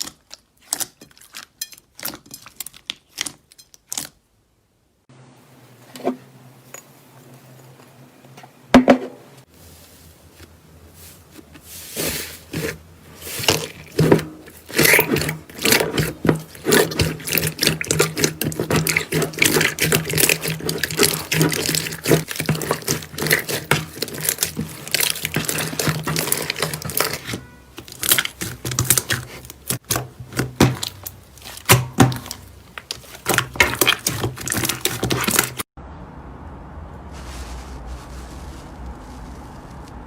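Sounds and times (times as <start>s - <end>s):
slime squelching and clicking: 0.0s - 4.2s.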